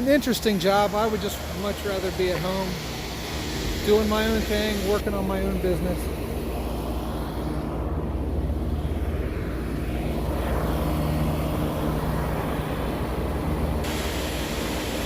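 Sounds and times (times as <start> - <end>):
hiss: 0.0 - 5.0, 13.8 - 15.0
hvac units droning: 0.0 - 15.0.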